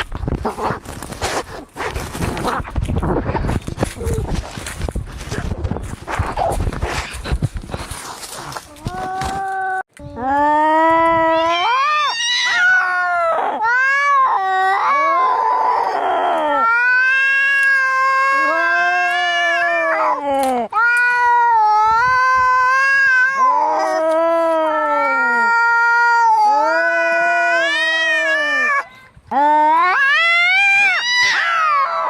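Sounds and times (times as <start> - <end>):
cats yowling in a fight: 11.2 - 20.2, 20.8 - 28.9, 29.5 - 32.0.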